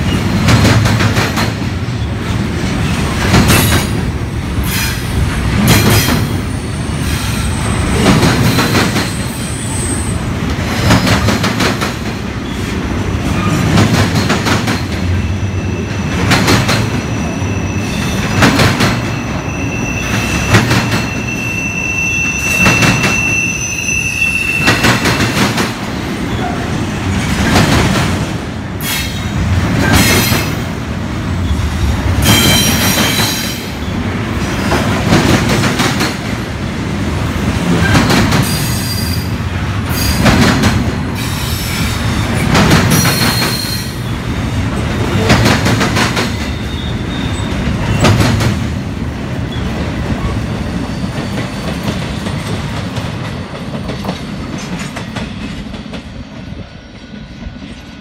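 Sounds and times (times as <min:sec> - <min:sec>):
train wheels clacking on rail joints: 0:00.0 - 0:06.4, 0:07.0 - 0:09.4, 0:10.4 - 0:15.2, 0:18.0 - 0:19.2, 0:24.6 - 0:30.7, 0:32.2 - 0:36.4, 0:37.6 - 0:39.2, 0:39.8 - 0:44.1, 0:44.7 - 0:48.7, 0:51.0 - 0:57.2
high-pitched wheel squeal: 0:17.0 - 0:18.4, 0:19.1 - 0:24.8.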